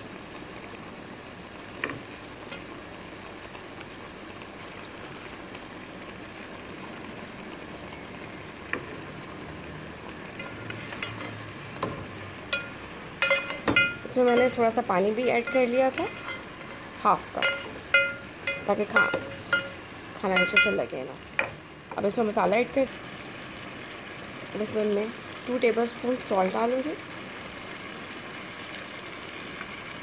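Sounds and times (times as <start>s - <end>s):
food frying in oil: 0.0s - 30.0s.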